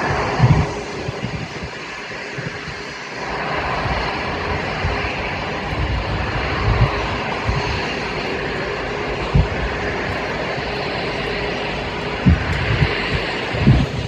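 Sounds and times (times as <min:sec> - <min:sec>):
jet engine rushing: 0:00.0 - 0:14.0.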